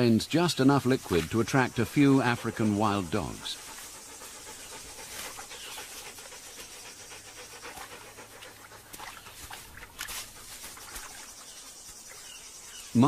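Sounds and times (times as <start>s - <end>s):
dogs panting: 0.0s - 13.0s
faint clicks and chirps: 3.6s - 13.0s.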